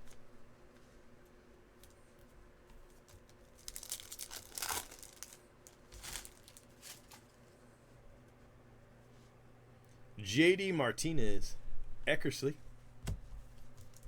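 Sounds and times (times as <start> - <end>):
card packaging crinkling: 3.0 - 7.4, 13.7 - 14.0.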